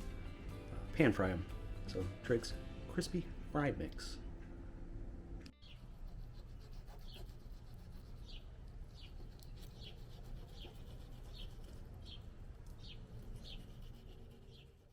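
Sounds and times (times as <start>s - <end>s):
bird chirping: 5.5s - 5.9s, 8.2s - 13.9s.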